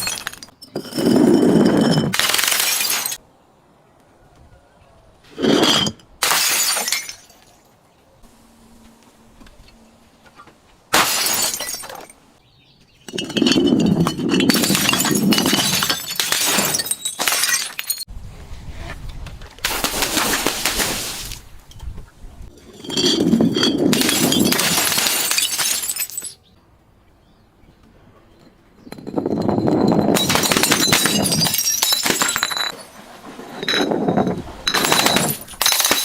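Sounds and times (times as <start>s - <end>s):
glass bottles breaking: 0.0s - 3.2s, 5.4s - 7.6s, 10.9s - 12.2s, 13.1s - 18.1s, 22.6s - 26.4s, 28.8s - 33.0s, 33.6s - 36.0s.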